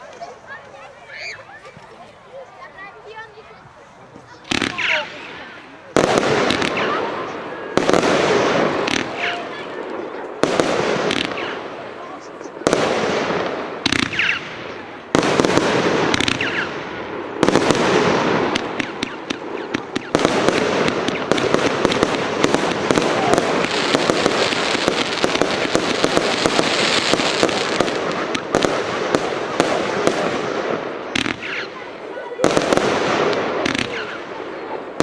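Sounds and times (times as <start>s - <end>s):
firework battery bangs and crackling: 4.1s - 35.0s.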